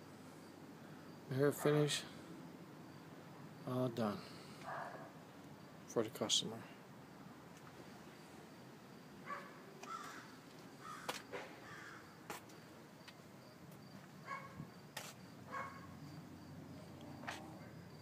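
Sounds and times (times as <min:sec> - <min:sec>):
faint bird calls: 0:09.3 - 0:12.1.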